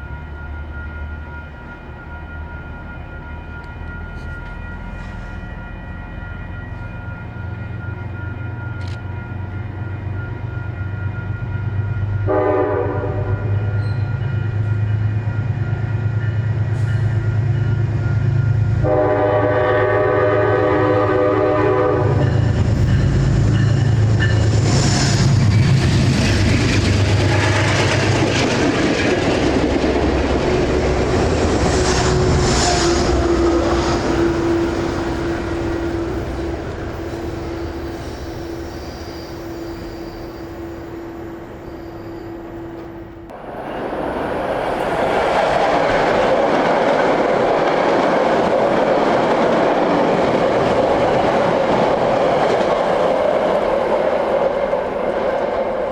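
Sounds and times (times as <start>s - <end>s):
diesel locomotive engines: 0.0s - 55.9s
train horn blasts: 12.2s - 14.2s, 18.6s - 22.6s, 27.2s - 27.9s, 30.6s - 43.0s
wheel and rail noise: 22.1s - 55.9s.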